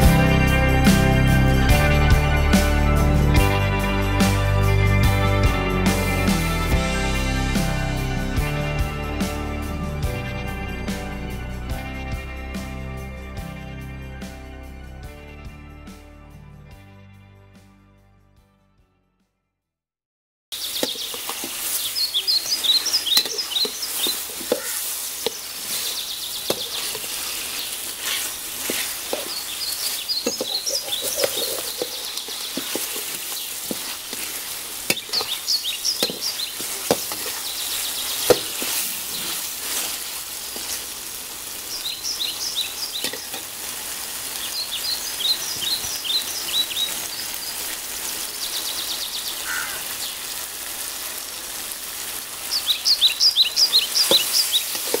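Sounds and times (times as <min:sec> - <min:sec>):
bird chirping: 0:20.5 - 0:39.5, 0:41.6 - 0:43.5, 0:44.3 - 0:50.2, 0:52.5 - 0:55.0
curry sizzling in a metal pan: 0:20.6 - 0:55.0
metal spatula stirring and scraping: 0:20.8 - 0:41.4, 0:54.0 - 0:55.0.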